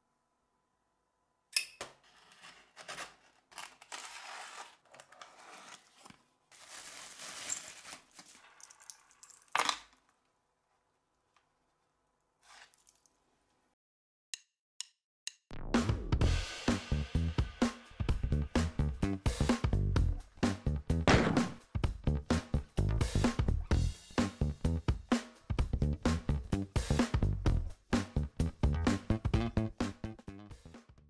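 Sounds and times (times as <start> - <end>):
paper tearing and crinkling: 2.0 - 9.2, 12.4 - 13.1
faint rustles and clicks: 4.8 - 9.4.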